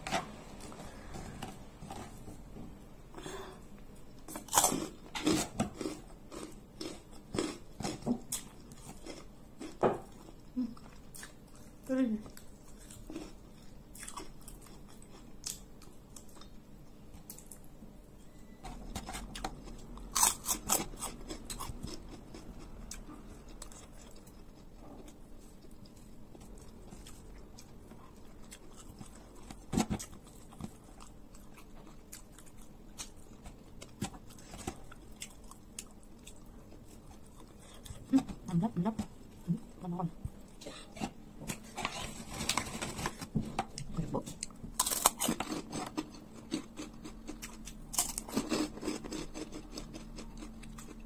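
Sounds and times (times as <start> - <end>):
close-up chewing: 4.2 - 17.7, 19.0 - 38.6.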